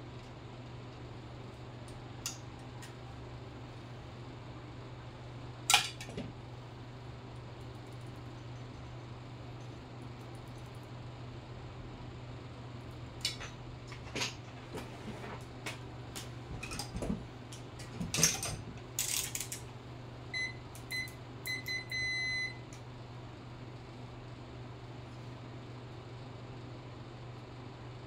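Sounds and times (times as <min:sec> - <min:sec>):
small parts clicking and knocking: 0:18.1 - 0:19.6.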